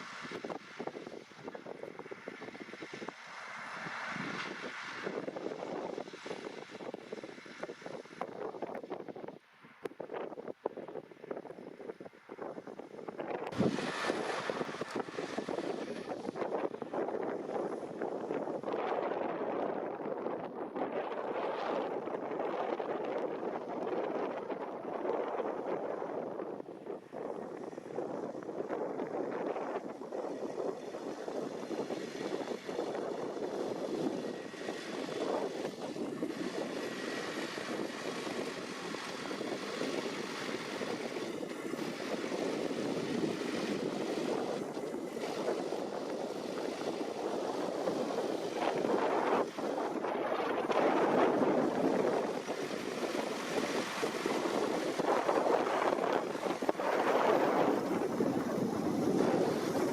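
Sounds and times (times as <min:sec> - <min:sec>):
tractor engine under load: 0:31.0 - 0:56.7.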